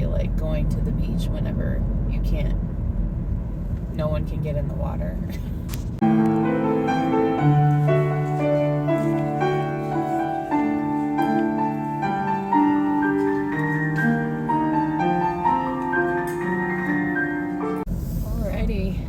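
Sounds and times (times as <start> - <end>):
slow piano melody: 6.0 - 17.9.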